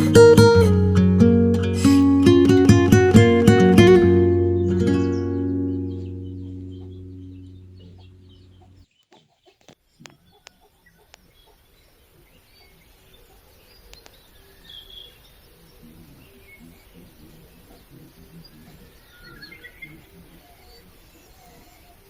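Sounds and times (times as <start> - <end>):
low outdoor hum: 1.8 - 8.9
small birds chirping: 1.8 - 22.0.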